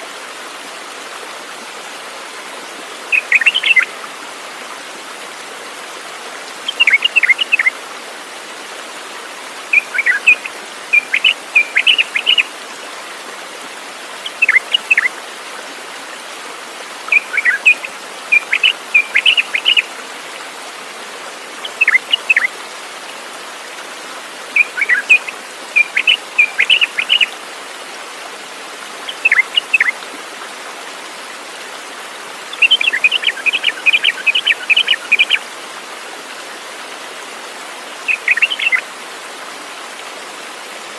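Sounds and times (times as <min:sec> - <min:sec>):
songbird chirping: 0:03.1 - 0:03.9, 0:06.7 - 0:07.7, 0:09.7 - 0:12.5, 0:14.2 - 0:15.1, 0:17.1 - 0:19.9, 0:21.7 - 0:22.5, 0:24.6 - 0:27.3, 0:29.1 - 0:30.0, 0:32.5 - 0:35.4, 0:38.1 - 0:38.9.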